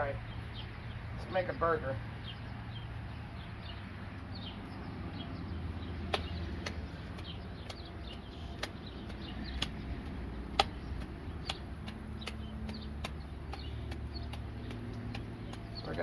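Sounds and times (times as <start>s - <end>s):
low outdoor rumble: 0.0s - 16.0s
small birds chirping: 0.0s - 16.0s
sharp clicks: 6.1s - 16.0s.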